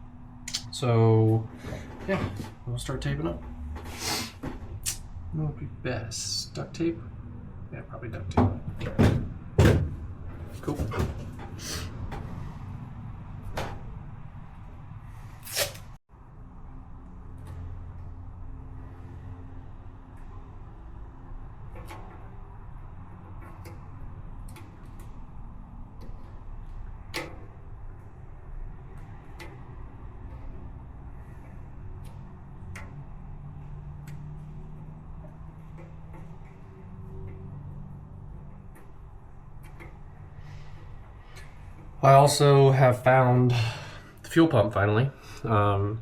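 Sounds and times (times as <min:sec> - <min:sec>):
clunks and knocks of handling: 0:08.3 - 0:12.3
duct tape ripping off roll: 0:15.4 - 0:15.9.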